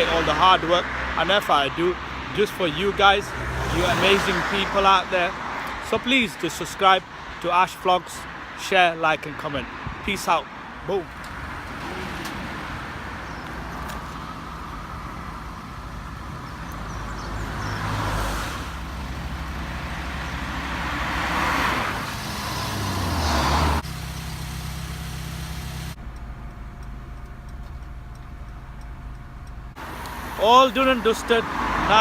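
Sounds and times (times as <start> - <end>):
nearby engine humming: 0.0 - 5.6
vehicles passing by: 0.0 - 32.0.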